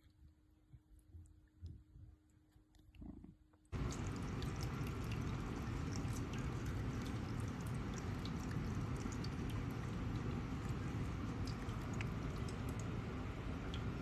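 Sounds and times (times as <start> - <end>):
drip-like ticks: 3.8 - 14.0
water fountain running and splashing: 3.8 - 14.0.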